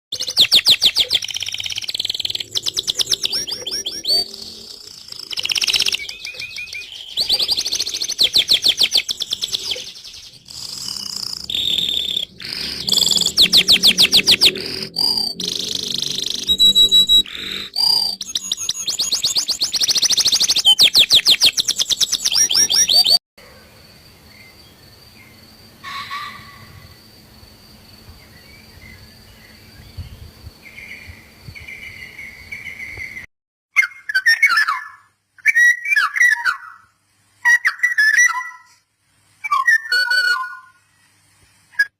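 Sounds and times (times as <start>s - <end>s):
small birds chirping: 0.1s - 23.2s.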